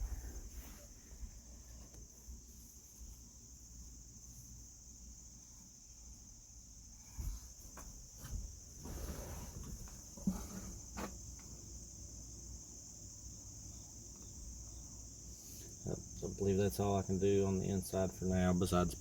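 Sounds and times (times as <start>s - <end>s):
crickets chirring: 0.0s - 19.0s
soft handling knocks: 7.1s - 11.6s.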